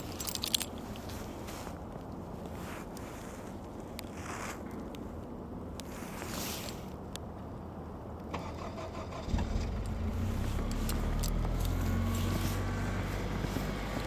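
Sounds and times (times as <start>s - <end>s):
car engine starting and idling: 8.2s - 14.0s.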